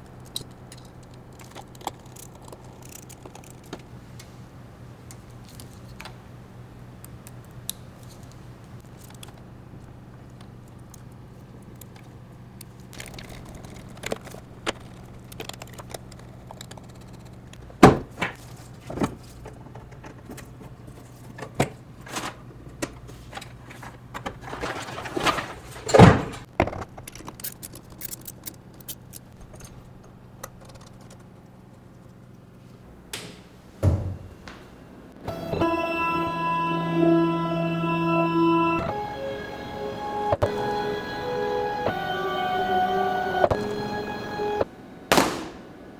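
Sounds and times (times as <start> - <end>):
steady low hum: 0.0 - 26.5, 27.8 - 45.9
metal parts and tools clinking: 23.3 - 29.9.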